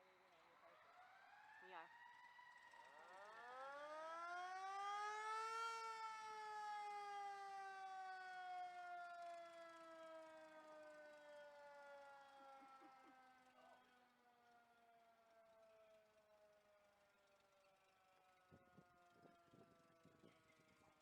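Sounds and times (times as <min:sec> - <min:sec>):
mechanical siren wailing: 0:00.9 - 0:16.2.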